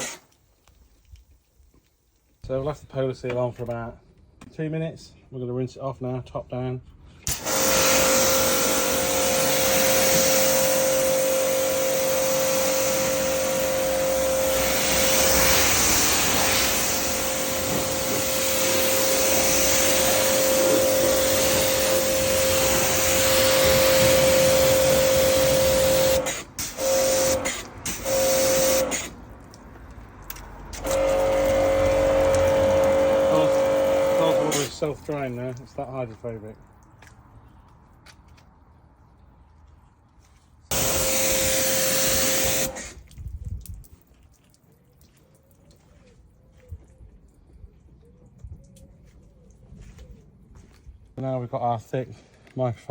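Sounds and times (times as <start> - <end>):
water jet hissing: 7.3 - 29.3, 30.6 - 35.4, 40.7 - 43.0
pressure washer motor hum: 7.3 - 29.4, 30.2 - 35.6, 40.7 - 43.0.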